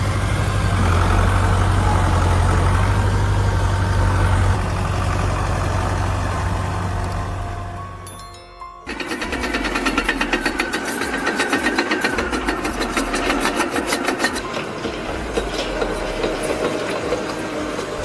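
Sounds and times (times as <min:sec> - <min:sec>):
heavy machine engine running: 0:00.0 - 0:08.2, 0:08.8 - 0:18.0
fast metallic clatter: 0:08.8 - 0:18.0.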